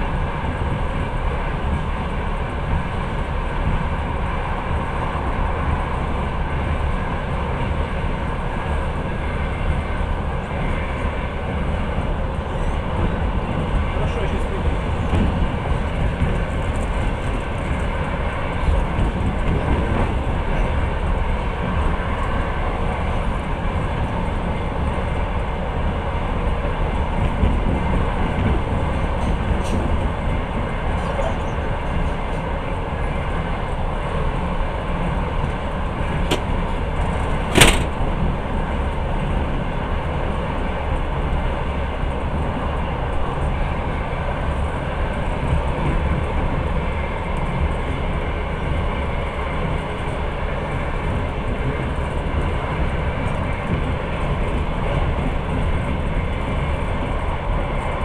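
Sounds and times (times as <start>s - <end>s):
train rumbling on rails: 0.0s - 58.0s
sharp knock: 37.5s - 38.0s.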